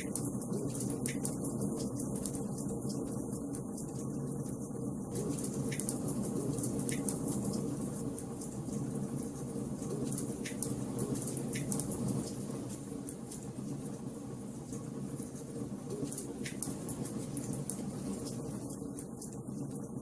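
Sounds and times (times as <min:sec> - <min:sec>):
fireplace fire crackling: 0:00.0 - 0:20.0.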